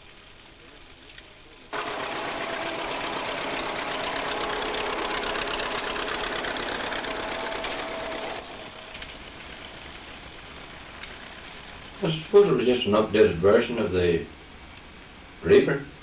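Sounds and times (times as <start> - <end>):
tractor engine running: 1.7 - 12.8
reaper-binder mechanism clattering: 1.8 - 9.3.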